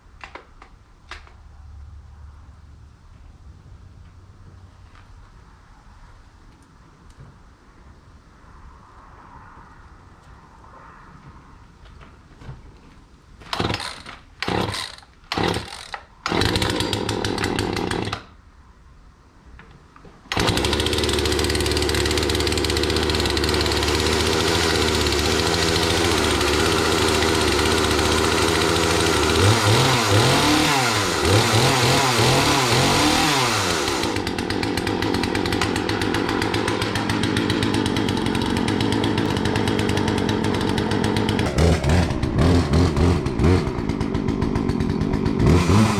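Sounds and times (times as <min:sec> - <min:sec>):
two-stroke chainsaw running: 0:13.5 - 0:18.3, 0:20.3 - 0:45.9.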